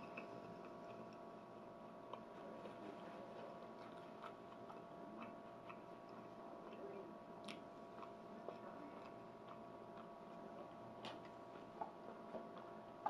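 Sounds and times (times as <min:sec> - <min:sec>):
close-up chewing: 0:00.0 - 0:13.0
faint steady hum: 0:00.0 - 0:13.0
wet mouth clicks: 0:07.4 - 0:08.2.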